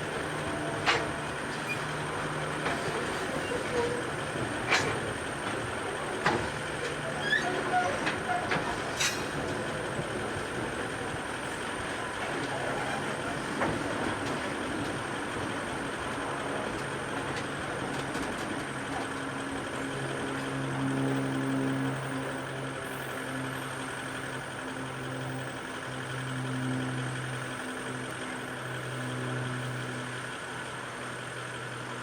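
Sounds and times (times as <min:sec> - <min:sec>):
wheels clicking over rail: 0:00.0 - 0:20.8
train wagons rumbling past: 0:00.0 - 0:32.0
vehicle engine idling hum: 0:00.0 - 0:32.0.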